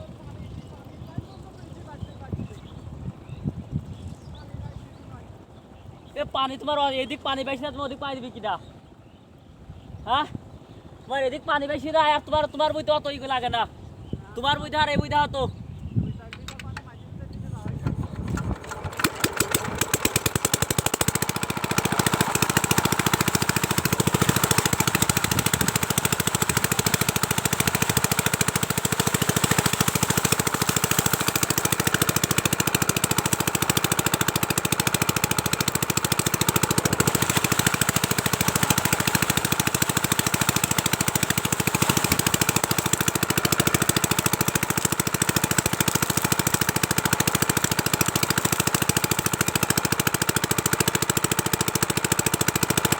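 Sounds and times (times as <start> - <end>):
diesel engine knocking: 17.6 - 52.9.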